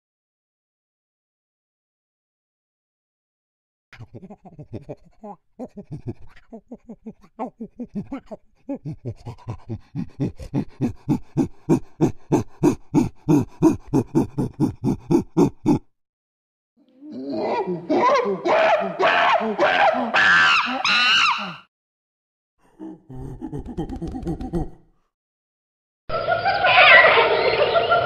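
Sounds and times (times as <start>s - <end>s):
chimpanzee panting: 4.0s - 15.9s.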